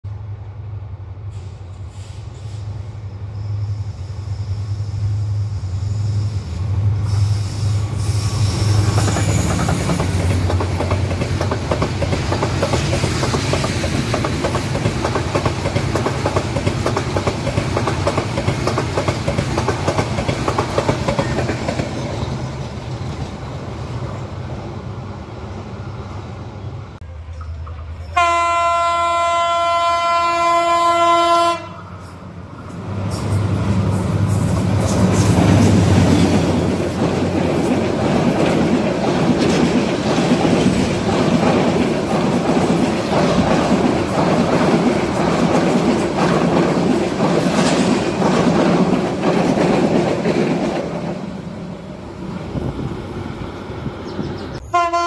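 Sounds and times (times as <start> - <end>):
train wheels knocking on rail joints: 8.8 - 22.4, 34.4 - 51.2.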